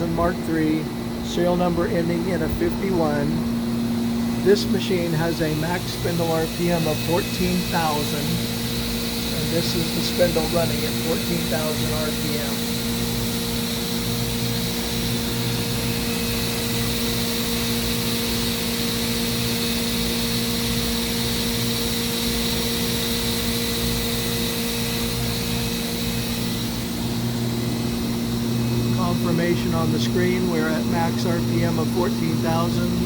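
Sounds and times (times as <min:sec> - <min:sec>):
machine spindle whirring tone: 0:00.0 - 0:33.0
constant hiss: 0:09.2 - 0:12.6.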